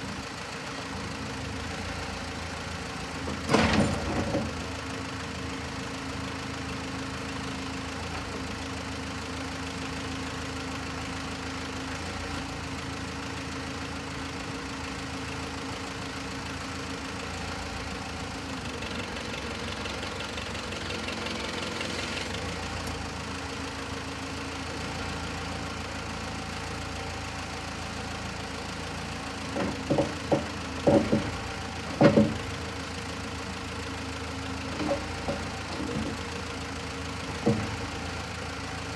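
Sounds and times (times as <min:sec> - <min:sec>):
backhoe engine idling: 0:00.0 - 0:38.9
loud knocks: 0:29.5 - 0:32.5.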